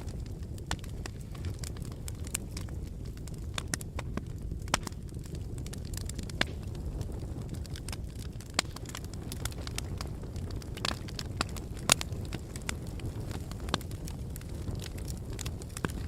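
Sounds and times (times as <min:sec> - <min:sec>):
fire crackling and popping: 0:00.0 - 0:16.0
fire rumbling: 0:00.0 - 0:16.0.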